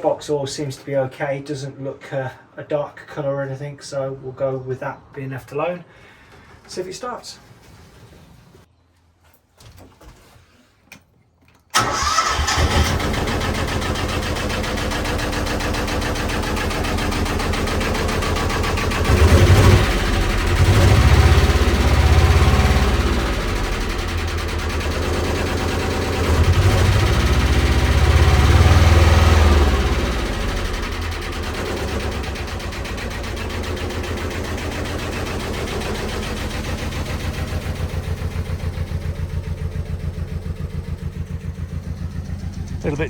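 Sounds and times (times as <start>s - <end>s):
diesel engine starting and revving: 11.7s - 43.0s.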